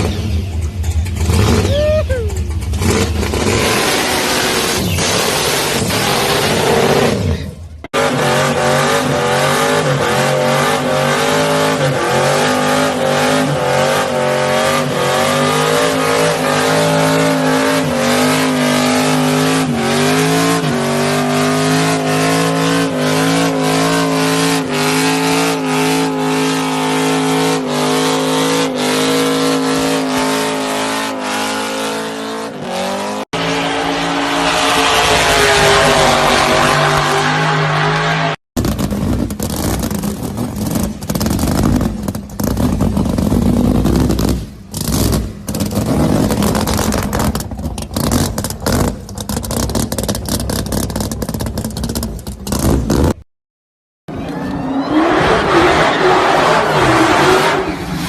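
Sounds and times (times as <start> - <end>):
car engine revving high: 2.7 - 38.8.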